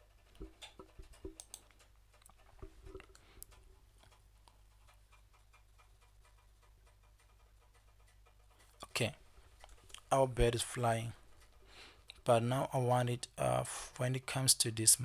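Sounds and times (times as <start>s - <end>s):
low steady hum: 0.0s - 4.8s, 8.6s - 15.0s
mouse and keyboard clicks: 0.4s - 3.2s.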